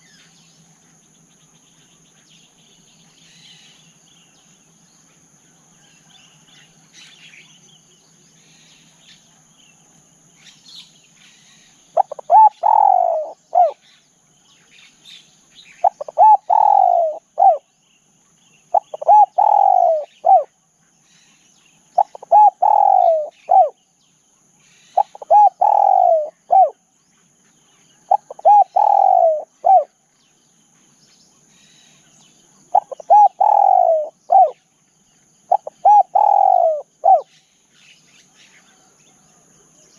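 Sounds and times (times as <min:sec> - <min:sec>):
high insect drone: 0:00.0 - 0:39.9
small bird chirps: 0:05.8 - 0:39.3
dove cooing: 0:11.9 - 0:13.8, 0:15.8 - 0:17.7, 0:18.7 - 0:20.6, 0:22.0 - 0:23.8, 0:24.9 - 0:26.8, 0:28.0 - 0:30.0, 0:32.7 - 0:34.6, 0:35.5 - 0:37.4.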